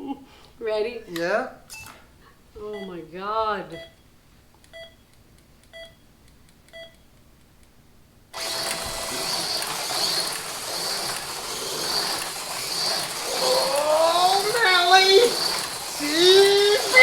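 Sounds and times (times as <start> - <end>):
timer short beeps: 1.7 - 2.0, 3.7 - 4.0, 4.7 - 5.0, 5.7 - 6.0, 6.7 - 7.0
slot cars whirring rattle: 8.4 - 17.0.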